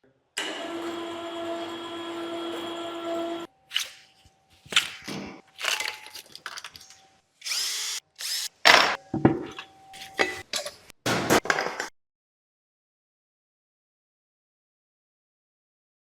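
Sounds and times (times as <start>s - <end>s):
power tool bursts: 7.4s - 8.6s.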